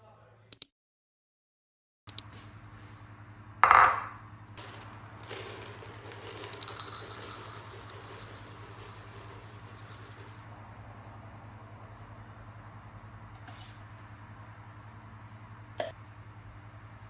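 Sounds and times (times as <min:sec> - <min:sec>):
fine high-pitched rattling: 0:04.6 - 0:10.5.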